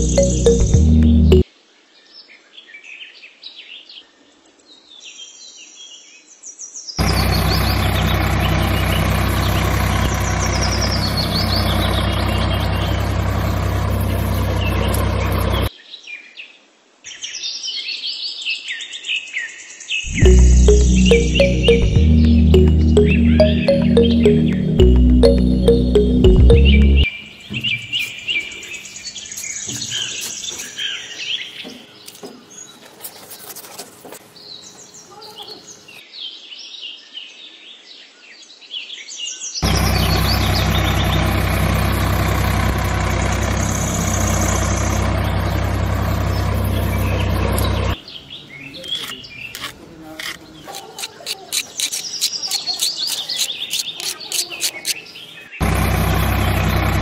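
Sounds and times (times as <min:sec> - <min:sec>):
birds chirping: 0:00.0 - 0:01.4, 0:07.0 - 0:15.7, 0:20.1 - 0:36.1, 0:39.6 - 0:57.0
toy tractor engine running: 0:07.0 - 0:15.7, 0:39.6 - 0:48.0, 0:49.0 - 0:55.0, 0:55.6 - 0:57.0.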